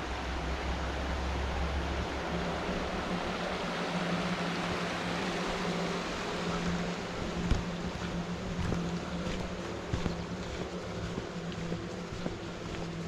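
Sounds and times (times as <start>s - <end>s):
creek water flowing: 0.0s - 13.0s
low steady hum: 0.0s - 13.0s.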